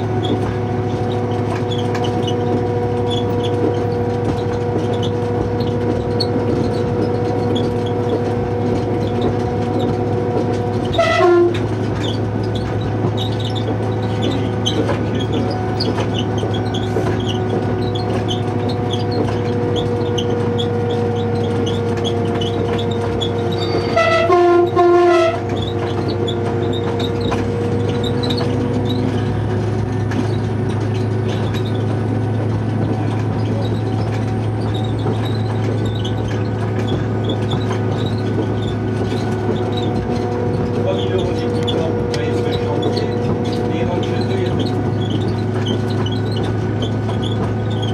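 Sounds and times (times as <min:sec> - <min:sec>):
diesel train engine drone: 0:00.0 - 0:47.9
train horn blast: 0:10.9 - 0:11.7, 0:23.6 - 0:25.5.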